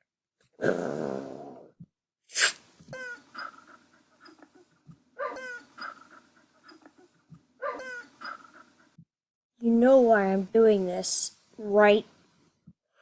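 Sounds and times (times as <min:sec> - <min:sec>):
dog whimpering: 0:05.2 - 0:08.7.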